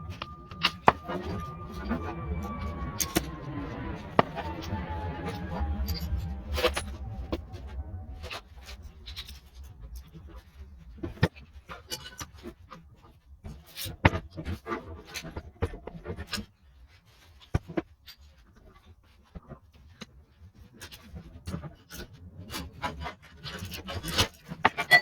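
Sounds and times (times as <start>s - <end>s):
metal parts and tools clinking: 24.7s - 25.0s.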